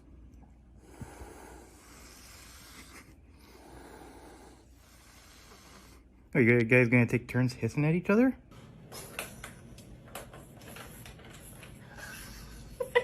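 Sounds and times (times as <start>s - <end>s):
cats hissing: 0.8s - 6.1s.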